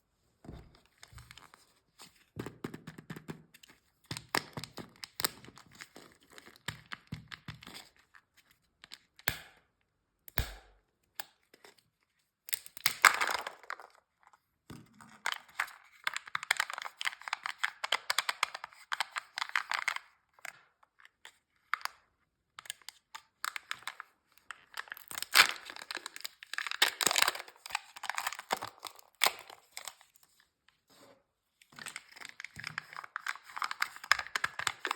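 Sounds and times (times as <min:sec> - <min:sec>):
wrappers tearing and crinkling: 0:24.8 - 0:30.1, 0:31.8 - 0:34.9.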